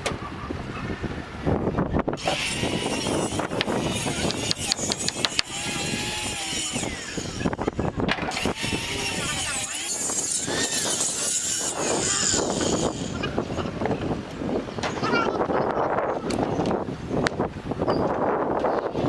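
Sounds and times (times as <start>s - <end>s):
power saw cutting wood: 2.2s - 14.2s
wood knocking: 3.6s - 5.6s.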